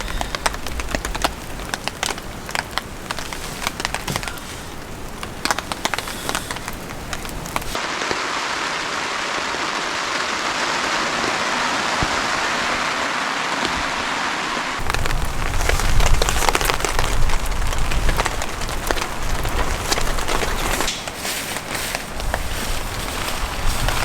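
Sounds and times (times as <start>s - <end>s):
raindrops ticking on a surface: 0.0s - 9.8s, 14.8s - 24.0s
steady hiss of rain: 0.0s - 24.0s.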